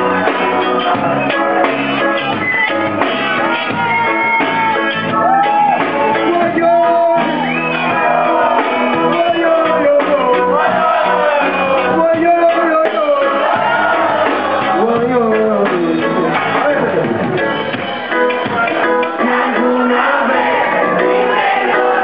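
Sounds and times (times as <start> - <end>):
reggae band playing live: 0.0 - 22.0.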